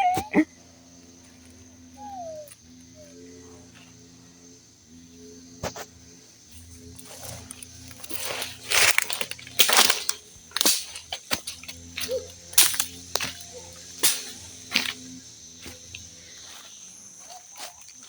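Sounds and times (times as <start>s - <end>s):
branches being chopped and snapped: 7.1s - 16.1s.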